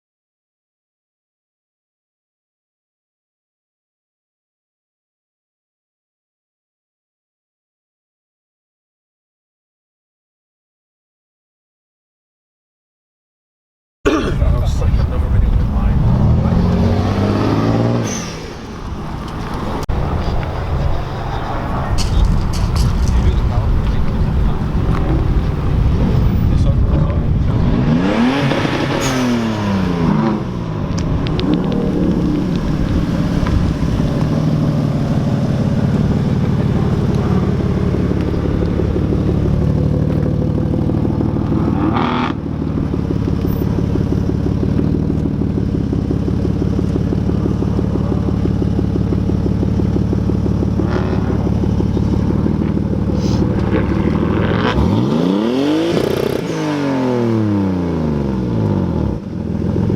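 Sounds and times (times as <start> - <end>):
car engine running and revving: 14.4 - 59.9.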